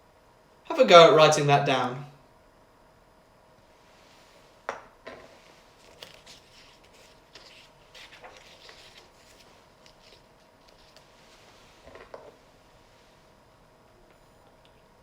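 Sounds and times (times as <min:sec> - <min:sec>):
scratching and rustling handling: 0:05.1 - 0:13.2.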